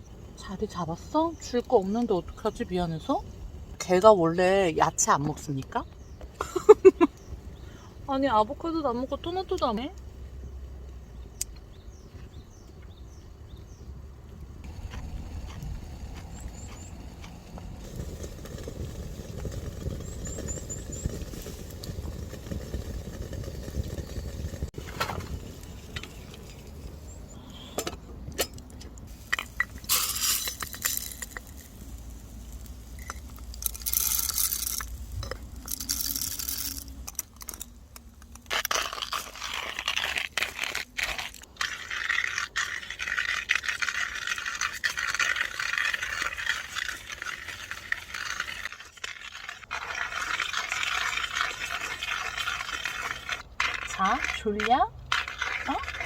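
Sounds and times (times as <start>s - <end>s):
utensil scraping a pan: 38.5s - 56.0s.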